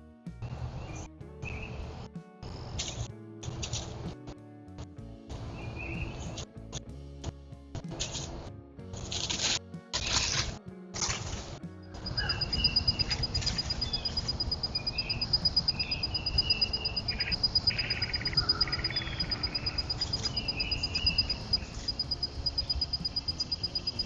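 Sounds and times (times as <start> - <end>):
low outdoor rumble: 0.0 - 24.0
rapid high-pitched chirping pulses: 11.9 - 24.0.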